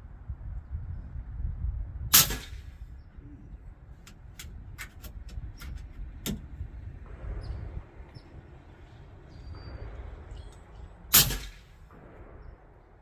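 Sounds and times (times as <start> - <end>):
suppressed air rifle shot: 2.1 - 2.8, 11.1 - 13.0.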